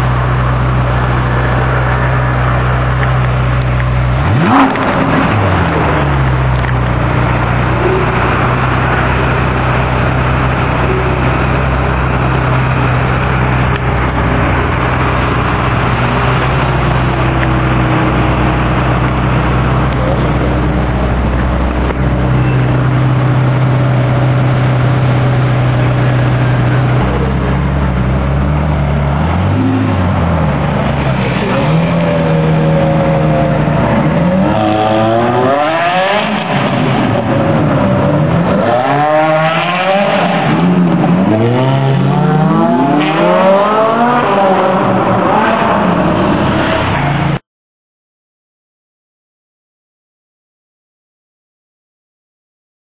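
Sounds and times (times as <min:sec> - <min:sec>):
sports car engine idling: 0:00.0 - 0:34.6
engine revving: 0:00.0 - 0:47.4.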